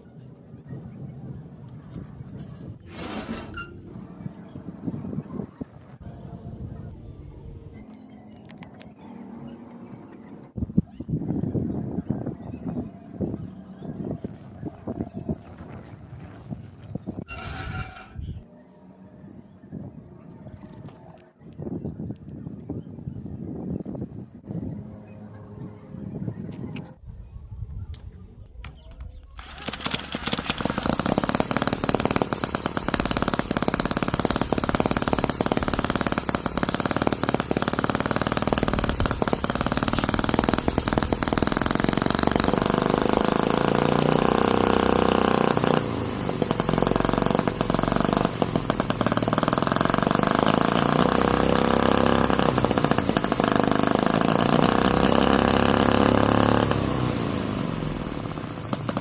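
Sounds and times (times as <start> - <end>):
model engine running fast: 29.4 - 59.0.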